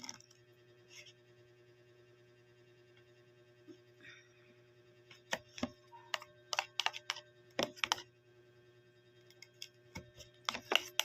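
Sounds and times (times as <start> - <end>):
spoon tapping against bowl: 5.3 - 8.1, 10.4 - 11.0.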